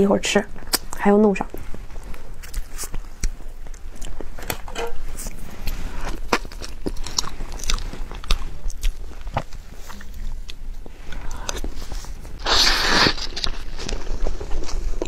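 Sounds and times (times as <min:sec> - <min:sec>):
wet chewing and lip smacks: 0:02.4 - 0:04.3, 0:06.2 - 0:10.6.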